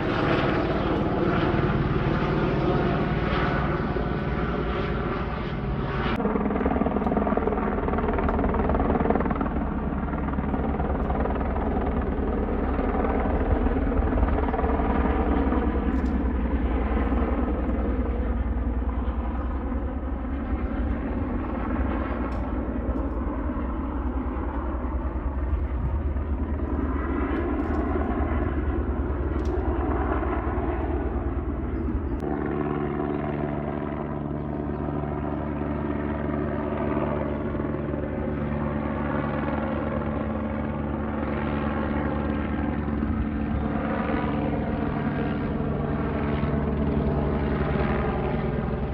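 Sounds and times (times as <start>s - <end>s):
helicopter flying over: 0.0s - 48.9s.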